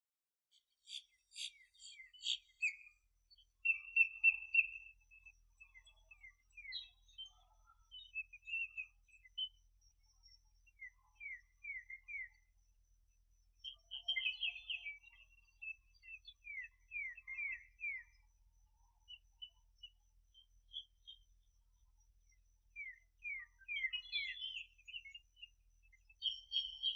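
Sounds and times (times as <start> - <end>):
small birds chirping: 0.5 - 26.9.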